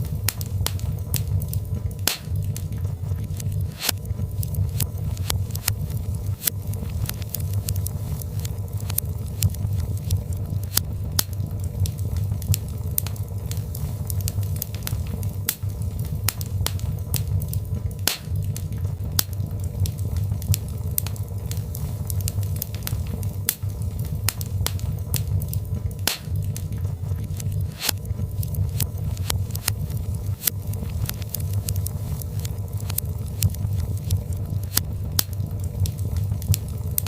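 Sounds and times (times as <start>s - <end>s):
low rumble of burning logs: 0.0s - 37.0s
wood fire crackling and popping: 0.0s - 37.0s.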